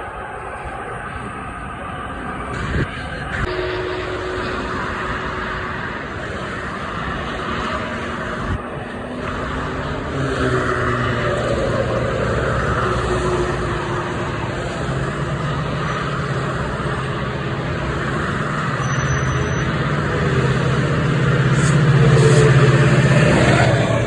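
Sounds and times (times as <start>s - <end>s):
road traffic engines rumbling: 0.0s - 24.0s.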